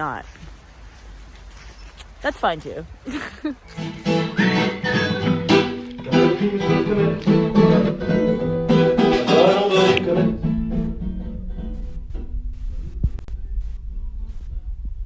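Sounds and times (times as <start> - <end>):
strummed acoustic guitar music: 3.8 - 12.4.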